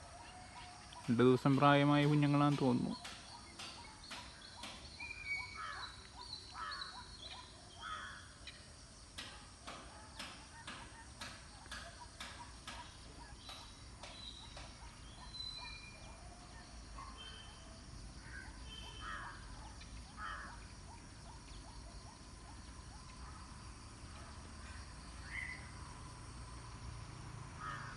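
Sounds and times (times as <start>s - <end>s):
birds chirping and whistling: 0.0s - 8.7s, 10.1s - 22.8s, 25.2s - 25.8s.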